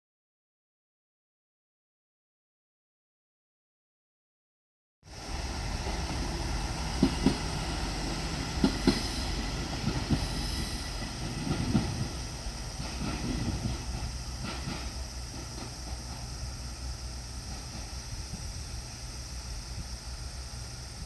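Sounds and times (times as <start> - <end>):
diesel railcar engine rumble: 5.1 - 21.0
wheels clacking over rail joint: 5.3 - 18.4.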